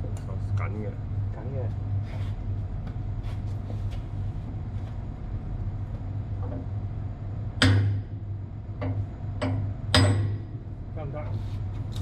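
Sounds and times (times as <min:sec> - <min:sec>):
steady low hum: 0:00.0 - 0:12.0
sharp metal knock with ring: 0:09.4 - 0:10.5.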